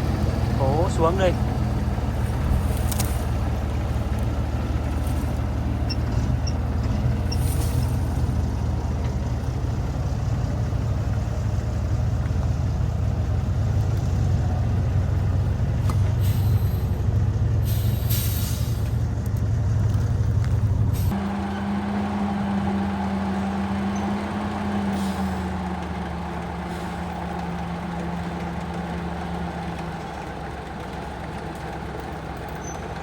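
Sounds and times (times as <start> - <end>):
heavy truck engine running: 0.0 - 33.0
air brake hisses: 16.2 - 17.0, 17.6 - 18.9.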